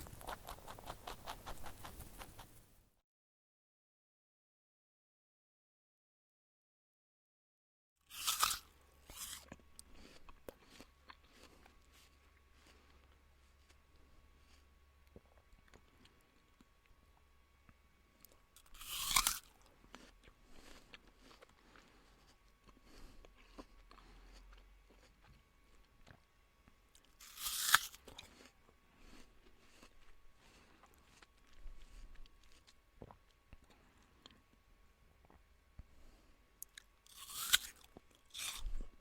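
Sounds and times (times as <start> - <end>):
crunching bites into crisp food: 0.0 - 2.5, 8.1 - 13.8, 18.2 - 26.2, 27.0 - 34.4, 36.6 - 39.0
chewing: 0.0 - 2.6, 8.2 - 34.6.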